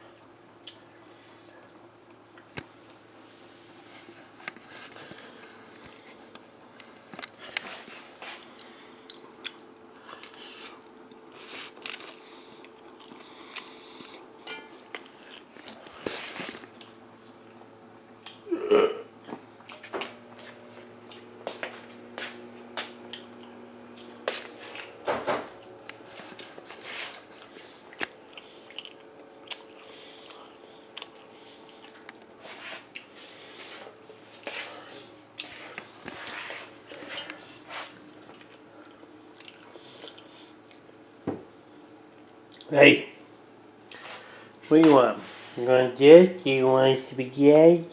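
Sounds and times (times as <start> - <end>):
person chewing food: 0.6 - 2.7, 4.3 - 17.6, 19.2 - 25.0, 25.6 - 40.9.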